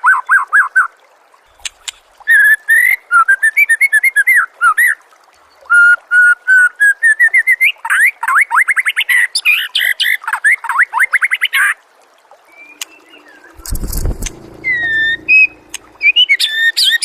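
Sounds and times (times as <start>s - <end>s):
songbird singing whistled trills: 12.5s - 17.0s.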